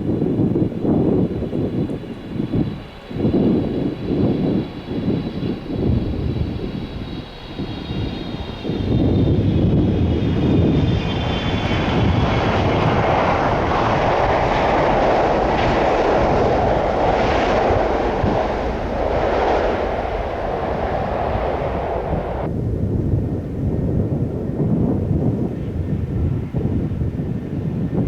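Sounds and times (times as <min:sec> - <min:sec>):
jet airliner passing overhead: 0:00.0 - 0:28.0.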